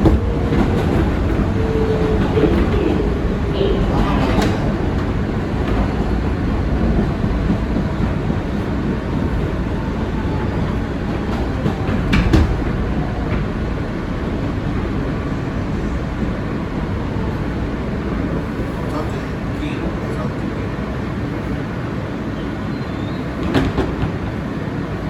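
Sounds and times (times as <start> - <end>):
wheel and track noise: 0.0 - 16.5
subway car rumble: 0.0 - 25.0.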